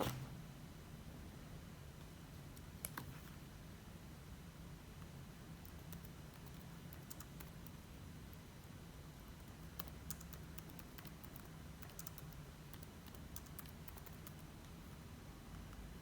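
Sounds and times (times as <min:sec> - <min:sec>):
typing on computer keyboard: 0:05.6 - 0:07.8, 0:09.5 - 0:14.5.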